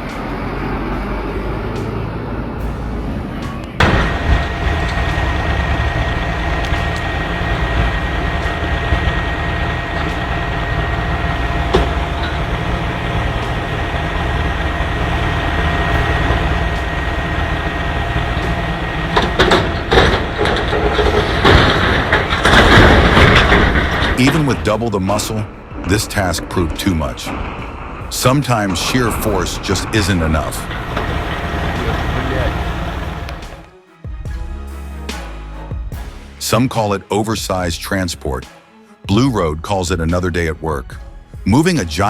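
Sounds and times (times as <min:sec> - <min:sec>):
truck engine rumbling with whine: 0:00.0 - 0:33.7
sharp knocks: 0:03.8 - 0:24.7.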